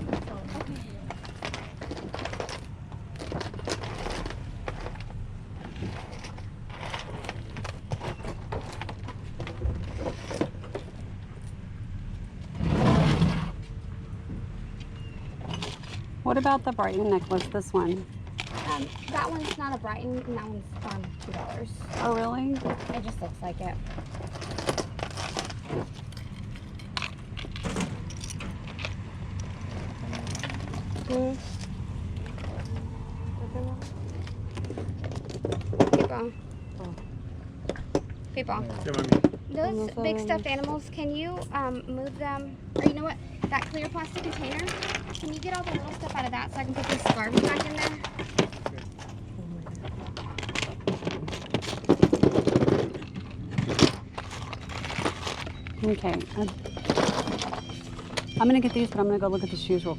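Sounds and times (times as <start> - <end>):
small objects clattering: 0.0 - 11.0, 15.4 - 23.2, 23.8 - 32.8, 42.8 - 58.7
low background hum: 0.0 - 59.9.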